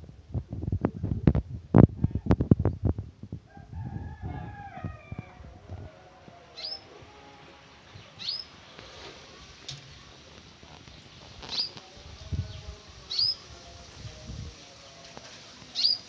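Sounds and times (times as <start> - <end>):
bird call with falling notes: 15.7 - 16.0.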